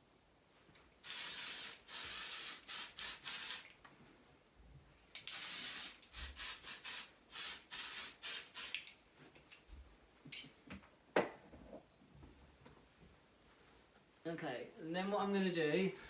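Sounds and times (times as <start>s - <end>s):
aerosol spray hissing onto hair: 1.0s - 3.8s, 5.2s - 9.0s.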